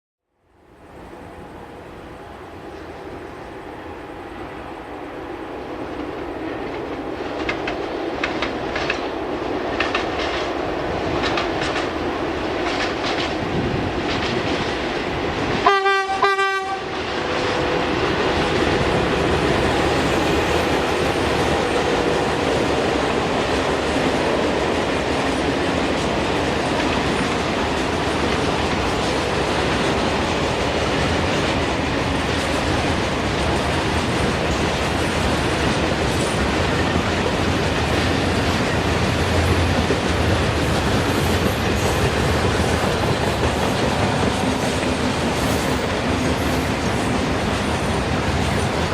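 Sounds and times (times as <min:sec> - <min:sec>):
train rumbling by: 0:00.4 - 0:48.9
train wheels clicking over rail joints: 0:05.9 - 0:15.6, 0:17.1 - 0:48.9
locomotive horn blast: 0:15.6 - 0:17.0.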